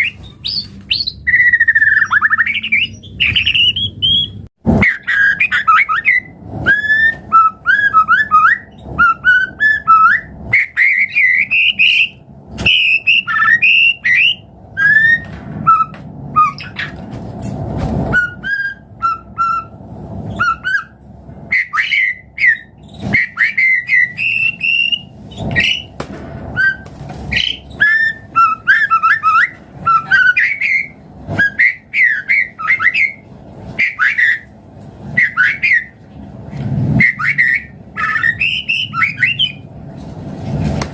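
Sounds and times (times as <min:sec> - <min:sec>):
bird singing whistled phrases: 0:00.0 - 0:17.0, 0:18.1 - 0:25.9, 0:26.6 - 0:33.2, 0:33.8 - 0:34.5, 0:35.2 - 0:36.0, 0:37.0 - 0:39.6.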